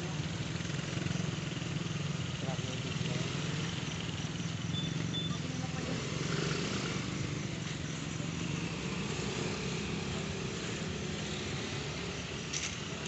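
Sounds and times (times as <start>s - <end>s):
street noise: 0.0s - 13.0s
vehicle engine running: 0.0s - 13.0s.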